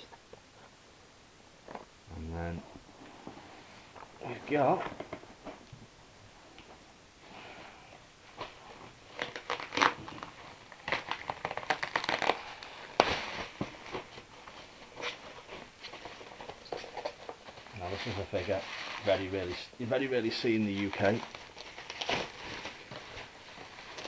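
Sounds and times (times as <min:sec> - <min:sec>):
bubble wrap crinkling: 0:08.3 - 0:24.0
sharp crackles and clicks: 0:09.2 - 0:13.2
loud packing snaps: 0:09.2 - 0:13.7.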